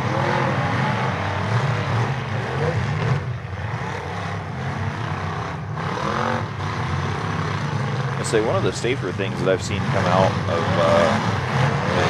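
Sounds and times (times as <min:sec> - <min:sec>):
car engines revving: 0:00.0 - 0:12.0
steady engine drone: 0:00.0 - 0:12.0.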